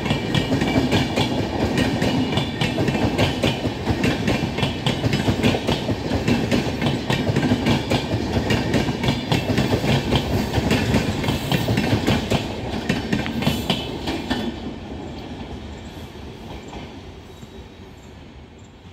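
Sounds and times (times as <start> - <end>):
wheels clicking over rail joints: 0.0 - 15.5
train rolling rumble: 0.0 - 18.9.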